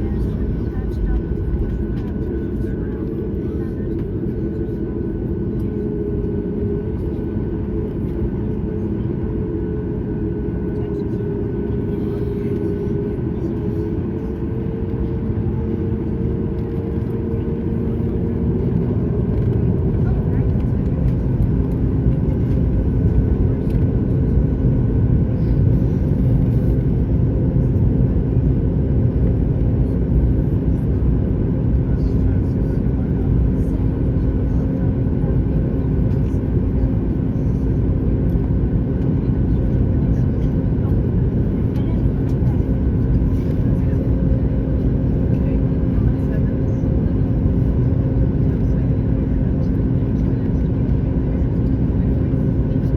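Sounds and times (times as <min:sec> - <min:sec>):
airplane cabin drone: 0:00.0 - 0:52.9
constant hum: 0:00.0 - 0:52.9.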